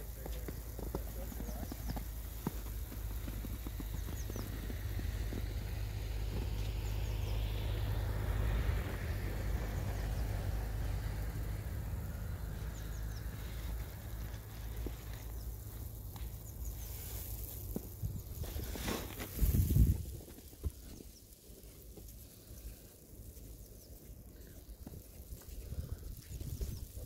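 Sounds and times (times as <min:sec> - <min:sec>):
steady low rumble: 0:00.0 - 0:27.0
vehicle passing by: 0:04.2 - 0:14.8.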